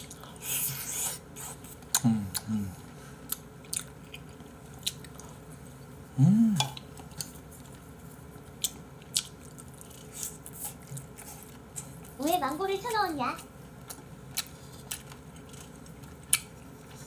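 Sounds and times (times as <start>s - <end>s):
man chewing with mouth clicks: 0.0s - 5.9s, 6.5s - 12.2s, 13.7s - 17.0s
man humming: 2.0s - 2.8s, 6.1s - 6.8s.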